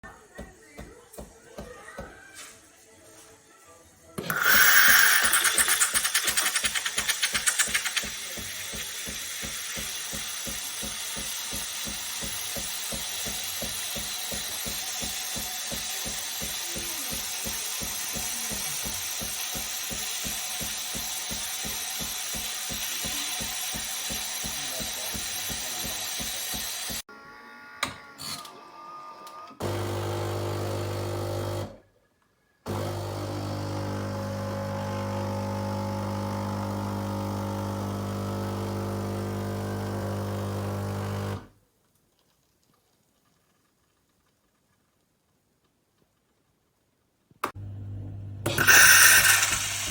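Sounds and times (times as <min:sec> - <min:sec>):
espresso machine pulsing: 0:04.2 - 0:27.0, 0:29.6 - 0:31.7, 0:32.7 - 0:41.4, 0:47.6 - 0:49.9.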